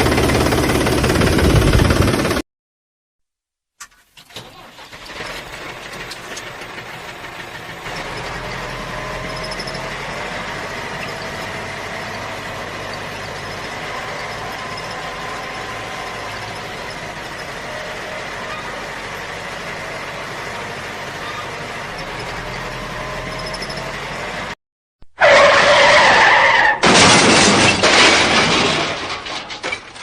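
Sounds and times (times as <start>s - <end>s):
engine running with thin whine: 0.0s - 2.4s, 5.1s - 24.6s.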